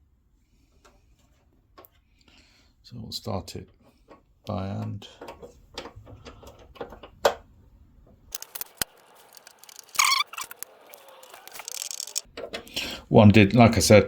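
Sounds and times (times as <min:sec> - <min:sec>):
plastic parts and screws clicking: 0:05.2 - 0:07.4, 0:08.3 - 0:12.8.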